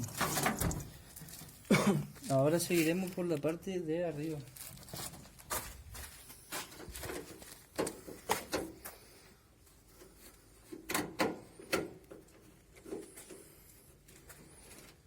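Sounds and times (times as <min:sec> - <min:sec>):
clicks and knocks of metal panels: 0:10.7 - 0:13.0.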